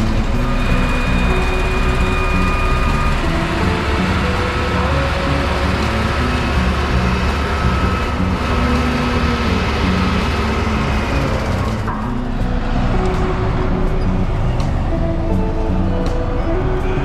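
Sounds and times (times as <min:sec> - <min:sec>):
motor vehicle rumble: 0:00.0 - 0:17.0.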